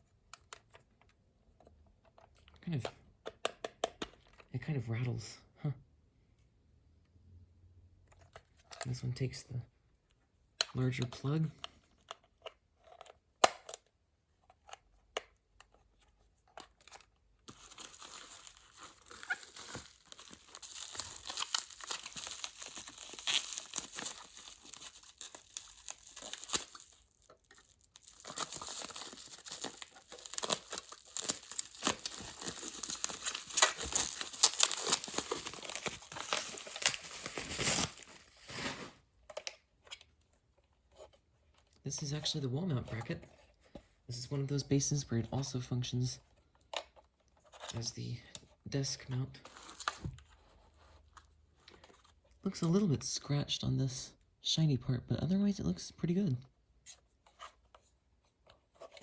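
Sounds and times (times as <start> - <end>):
packaging wrap crinkling and tearing: 16.7 - 39.0.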